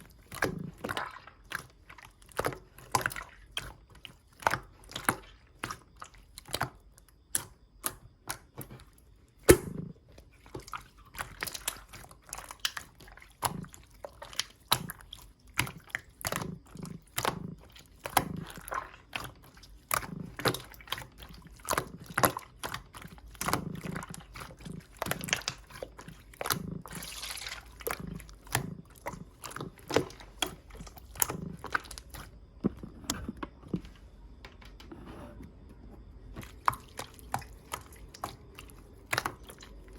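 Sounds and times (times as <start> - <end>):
slime squished by hand: 0.0 - 33.3, 36.3 - 39.9.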